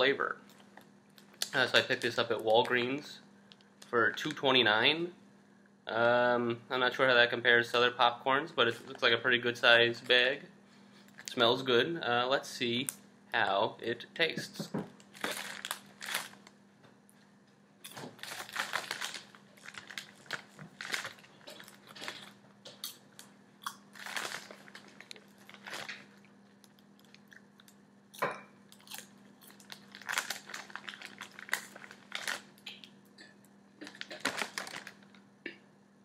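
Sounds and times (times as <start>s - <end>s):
steady low hum: 0.0s - 36.0s
plastic bag crinkling: 15.0s - 16.6s, 17.9s - 23.3s, 23.9s - 27.3s, 28.8s - 32.7s, 33.8s - 35.3s
person chewing crunchy popcorn: 17.8s - 32.9s.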